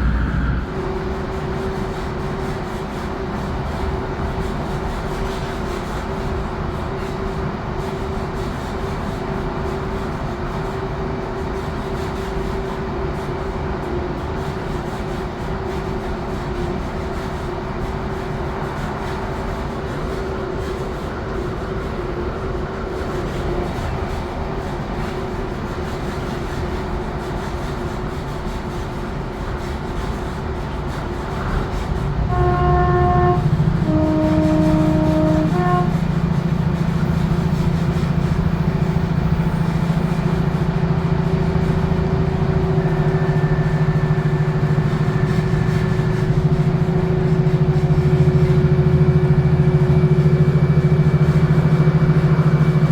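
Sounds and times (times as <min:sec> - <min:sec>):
train running rumble: 0:00.0 - 0:52.9
constant droning tone: 0:31.3 - 0:52.9.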